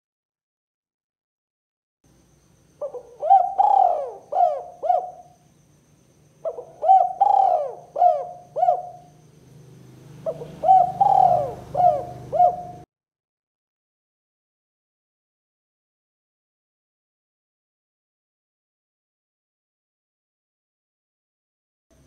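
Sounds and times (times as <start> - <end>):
faint low hum: 2.1 - 12.9
dove cooing: 2.8 - 5.4, 6.4 - 12.9.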